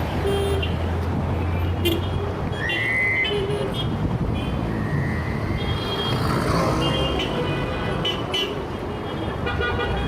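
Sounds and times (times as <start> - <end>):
vehicle engines rumbling: 0.0 - 10.0
car horns honking: 5.5 - 10.0.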